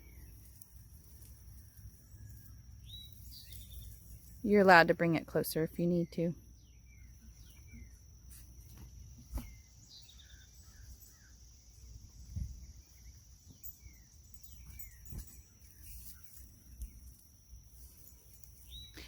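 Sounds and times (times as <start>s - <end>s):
small birds chirping: 0.0s - 19.0s
high insect-like whine: 6.4s - 19.0s.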